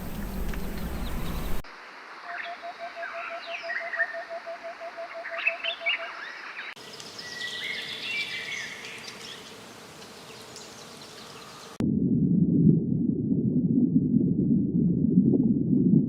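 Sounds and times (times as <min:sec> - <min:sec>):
birds chirping: 0:00.0 - 0:01.6, 0:05.1 - 0:11.8.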